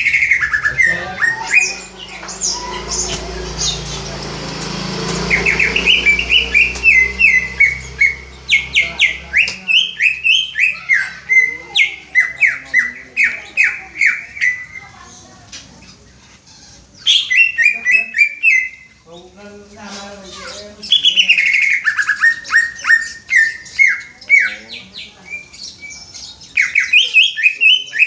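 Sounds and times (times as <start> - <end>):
bird whistling downward notes: 0.0 - 14.8.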